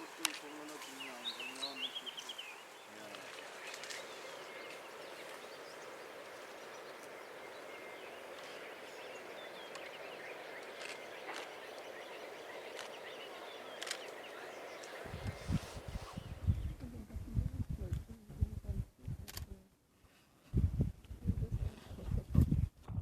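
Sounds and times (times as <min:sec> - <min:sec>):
faint bird chirps: 0:00.8 - 0:16.8.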